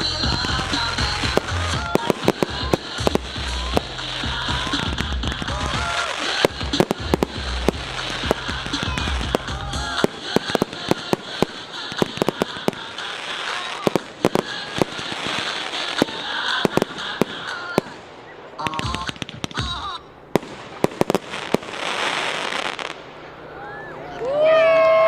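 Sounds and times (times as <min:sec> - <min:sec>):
bass-heavy pop music: 0:00.0 - 0:11.0
fireworks banging and crackling: 0:00.0 - 0:23.5.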